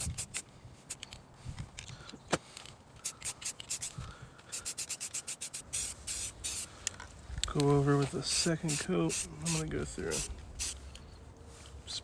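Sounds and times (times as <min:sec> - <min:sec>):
spray can mixing ball rattling: 0:03.0 - 0:04.0, 0:04.6 - 0:06.7, 0:08.2 - 0:10.8.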